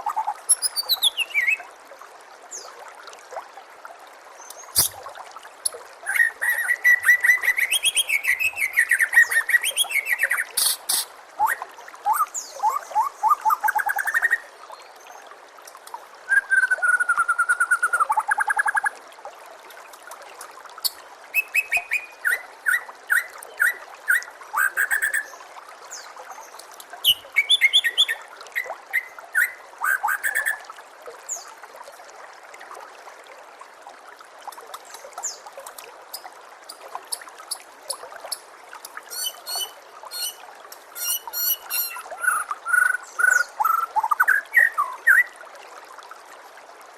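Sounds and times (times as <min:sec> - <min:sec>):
water trickling: 0:00.0 - 0:46.9
songbird singing: 0:00.1 - 0:01.6, 0:06.0 - 0:14.5, 0:39.1 - 0:40.4, 0:41.0 - 0:45.3.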